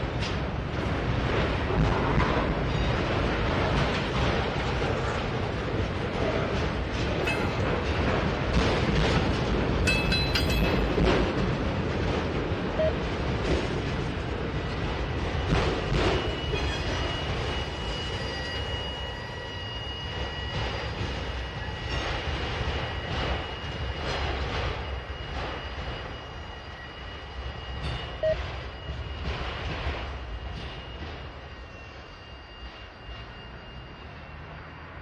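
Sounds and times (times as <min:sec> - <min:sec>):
train wheels clacking over rail joints: 0:00.0 - 0:17.6
high wheel squeal: 0:16.1 - 0:23.9.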